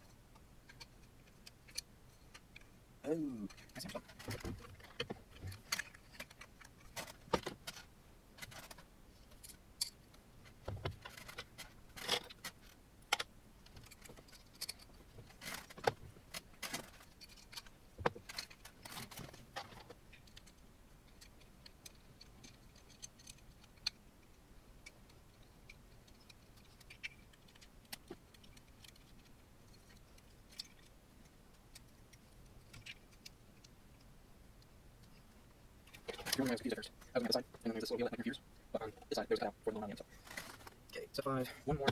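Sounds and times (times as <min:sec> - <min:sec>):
small metal parts clicking: 0:00.6 - 0:02.6, 0:11.0 - 0:33.7.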